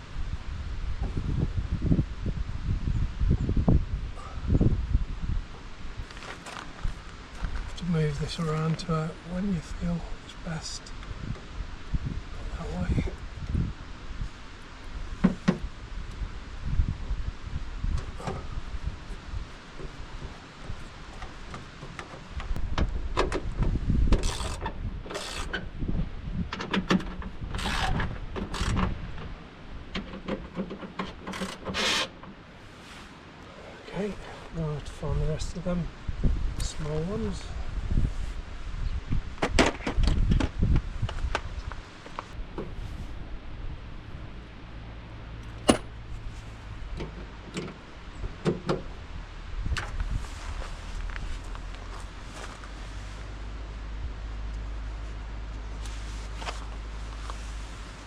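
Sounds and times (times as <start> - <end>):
steady low rumble: 0.0 - 25.0, 40.2 - 58.0
short scraping rustles: 31.3 - 34.6.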